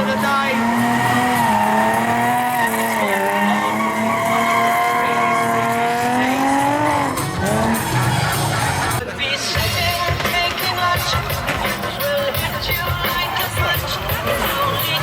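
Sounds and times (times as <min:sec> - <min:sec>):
car engine revving high: 0:00.0 - 0:09.0
tyre squeal: 0:00.5 - 0:08.2.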